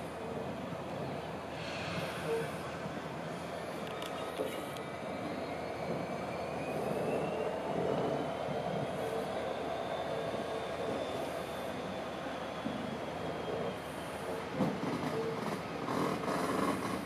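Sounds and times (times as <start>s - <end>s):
train rumbling slowly: 0.0s - 17.0s.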